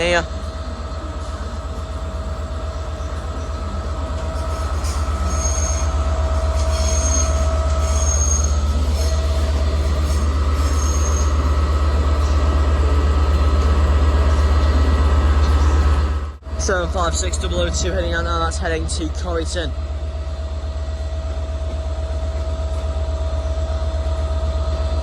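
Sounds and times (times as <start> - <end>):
mid-pitched whine: 0.0 - 23.5
train low hum: 0.0 - 25.0
train wheels squealing: 1.2 - 12.6.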